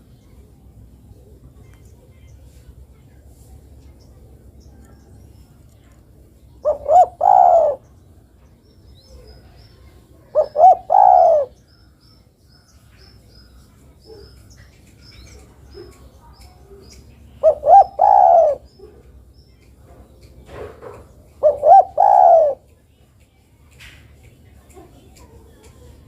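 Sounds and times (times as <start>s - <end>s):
dove cooing: 6.6s - 7.8s, 10.3s - 11.6s, 17.4s - 19.1s, 20.5s - 22.7s.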